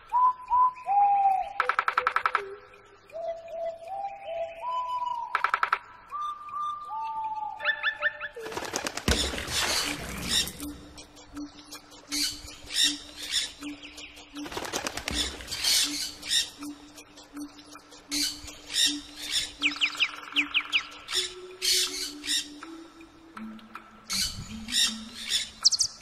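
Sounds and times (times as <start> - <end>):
birds squawking and calling: 6.9 - 16.9, 17.7 - 23.0, 24.1 - 26.0.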